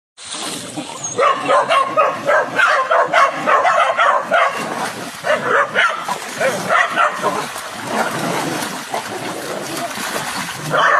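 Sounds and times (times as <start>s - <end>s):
dog yipping: 1.1s - 4.6s.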